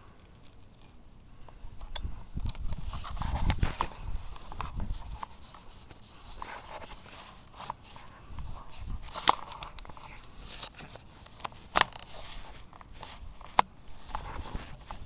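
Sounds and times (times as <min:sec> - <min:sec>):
wind on microphone: 0:01.4 - 0:05.9, 0:08.1 - 0:10.2, 0:13.1 - 0:15.0.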